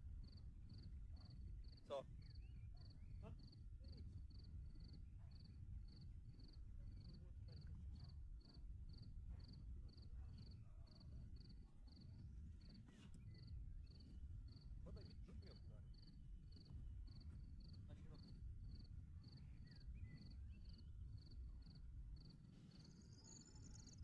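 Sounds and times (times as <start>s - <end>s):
cricket chirping: 0.1s - 24.0s.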